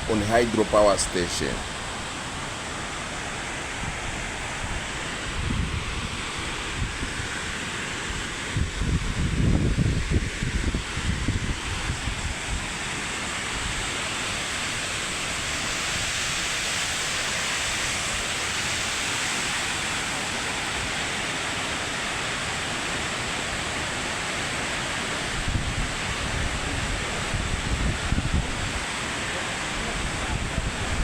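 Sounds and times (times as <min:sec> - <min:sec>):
waterfall rushing: 0:00.0 - 0:31.0
wind rumble on microphone: 0:03.8 - 0:12.8, 0:25.3 - 0:28.9, 0:29.8 - 0:31.0.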